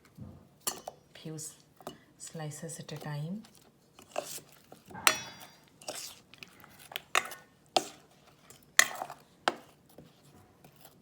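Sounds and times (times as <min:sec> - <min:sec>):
utensil clinking against a bowl: 0:00.6 - 0:01.1, 0:02.8 - 0:09.8.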